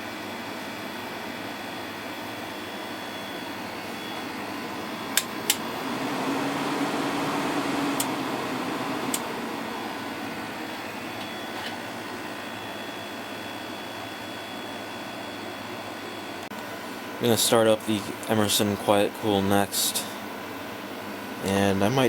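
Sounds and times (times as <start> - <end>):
air conditioner fan blowing: 0.0 - 22.0
low hum: 2.3 - 14.1.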